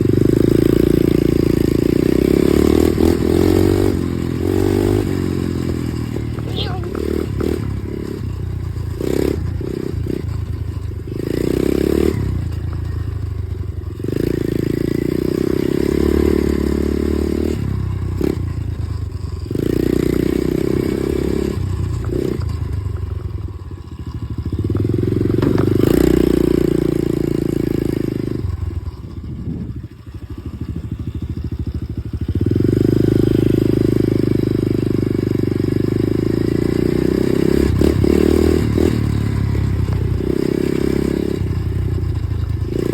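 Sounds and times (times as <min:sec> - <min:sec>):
dirt bike engine revving: 0:00.0 - 0:13.0, 0:13.9 - 0:22.8, 0:23.6 - 0:42.9.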